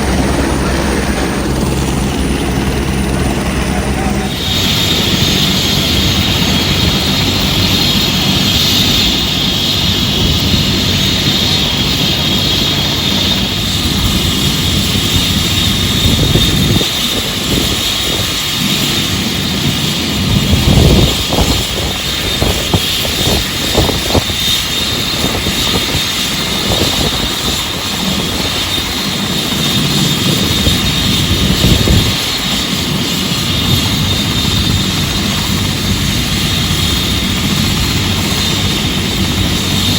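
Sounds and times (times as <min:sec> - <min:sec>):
helicopter engine and rotors: 0:00.0 - 0:39.9.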